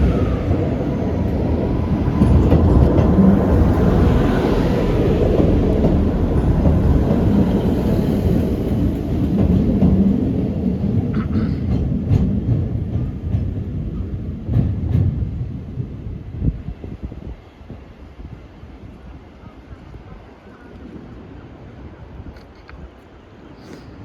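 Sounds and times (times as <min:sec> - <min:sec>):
diesel train engine: 0:00.0 - 0:13.9.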